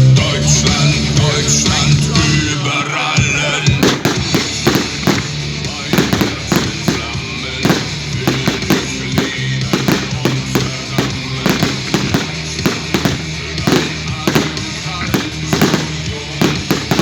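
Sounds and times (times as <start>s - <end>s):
fireworks bangs: 1.4s - 17.0s.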